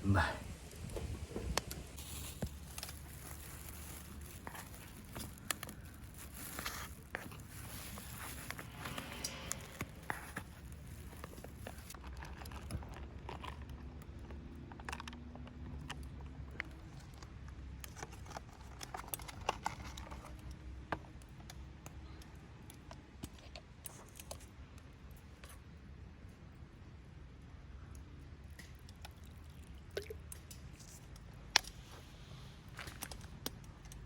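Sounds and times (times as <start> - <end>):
steady low rumble: 0.0 - 12.0
small clicks and crackles: 0.6 - 25.8, 27.8 - 34.0.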